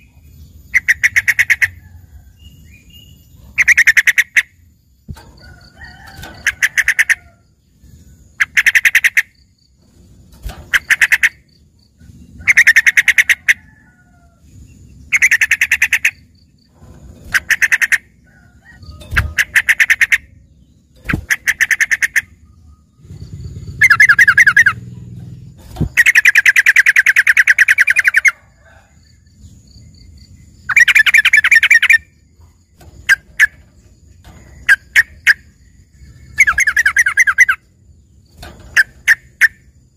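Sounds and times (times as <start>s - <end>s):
bird song bursts: 0.0s - 5.3s, 14.6s - 39.9s.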